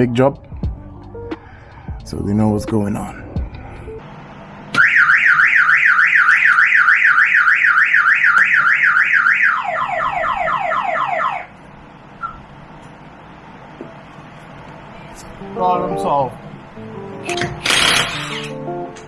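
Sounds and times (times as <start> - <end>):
car alarm siren warbling: 4.8 - 11.6.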